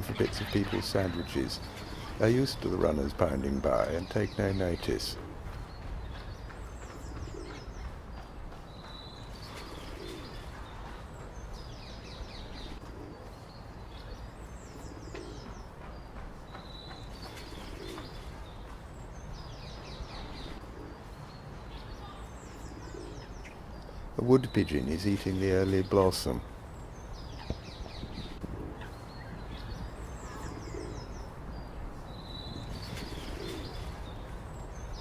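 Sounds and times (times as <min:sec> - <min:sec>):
songbird singing: 0:00.0 - 0:35.0
pigeon cooing: 0:30.2 - 0:31.1, 0:33.0 - 0:34.1.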